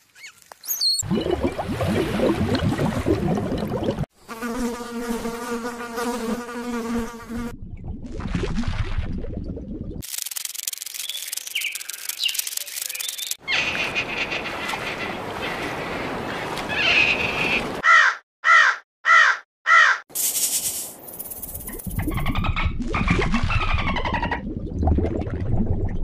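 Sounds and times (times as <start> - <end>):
faint chirps: 10.7 - 13.4
crow cawing: 16.7 - 20.0
hissy noise: 20.1 - 21.8.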